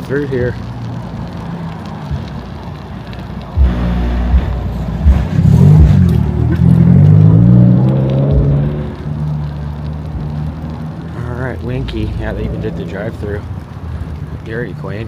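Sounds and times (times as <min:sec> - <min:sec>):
car engine accelerating: 0:03.5 - 0:13.2.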